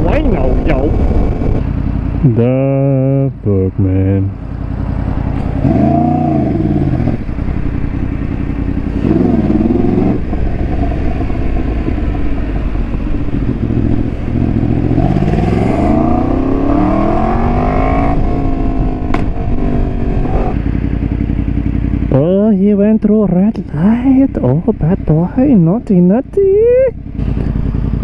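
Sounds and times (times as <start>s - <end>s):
rush of riding wind: 0.0s - 2.2s, 4.4s - 22.1s, 26.4s - 28.0s
motorcycle engine revving: 0.0s - 28.0s.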